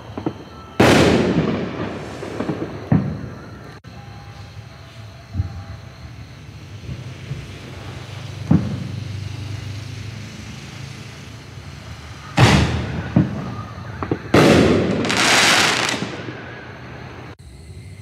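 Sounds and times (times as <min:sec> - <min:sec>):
small firework pops: 0:00.1 - 0:03.8, 0:08.4 - 0:09.0, 0:12.4 - 0:16.4.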